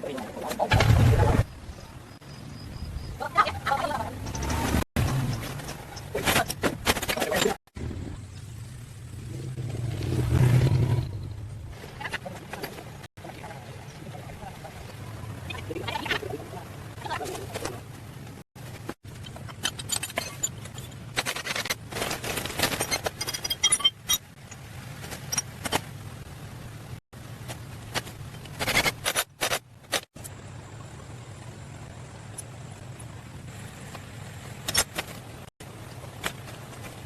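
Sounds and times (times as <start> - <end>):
clicks clinks and scrapes: 19.1 - 24.4, 28.0 - 30.1.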